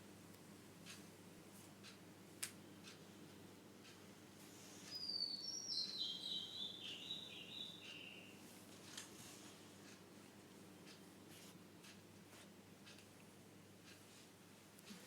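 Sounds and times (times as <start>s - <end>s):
songbird singing high notes: 4.9s - 8.3s.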